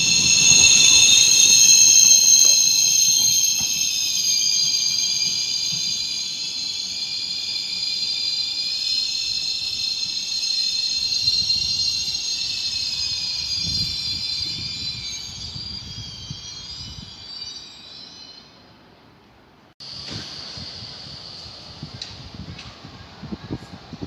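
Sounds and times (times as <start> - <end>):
low rumble: 0.0 - 4.5
train wheels squealing: 0.0 - 24.0.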